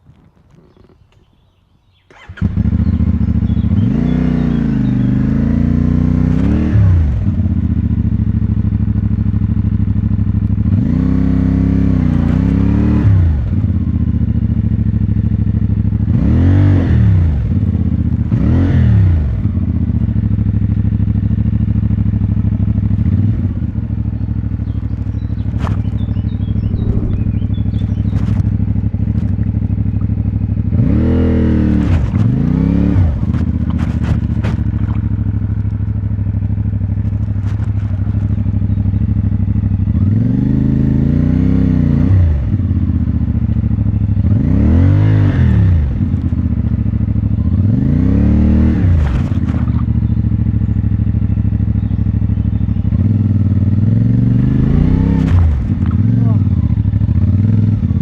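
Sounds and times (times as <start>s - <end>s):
motorcycle engine idling: 0.0s - 5.4s, 7.2s - 10.8s, 19.4s - 30.8s, 33.0s - 40.2s, 42.5s - 44.4s, 46.0s - 47.8s, 49.4s - 58.0s
engine throttle blips: 2.0s - 5.4s, 23.2s - 38.7s, 51.8s - 58.0s.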